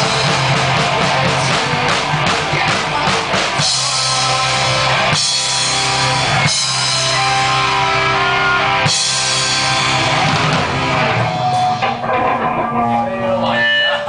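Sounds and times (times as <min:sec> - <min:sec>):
rock band playing: 0:00.0 - 0:14.0
guitar notes ringing: 0:06.2 - 0:14.0.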